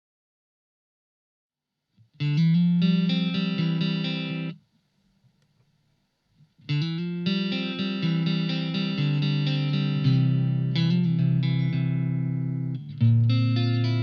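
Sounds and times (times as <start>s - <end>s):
electric guitar phrases: 2.0s - 4.6s, 6.6s - 14.0s.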